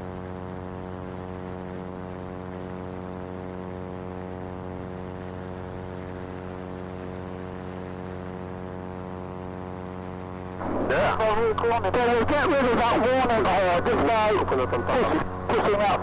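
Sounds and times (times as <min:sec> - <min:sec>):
airplane engine drone: 0:09.3 - 0:16.0.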